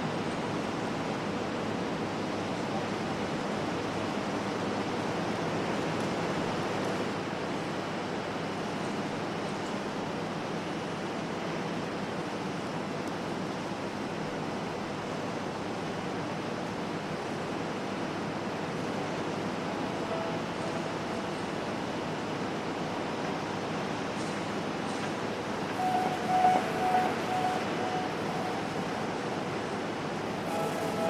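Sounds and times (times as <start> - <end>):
ambient electronic noise wash: 18.8 - 31.0.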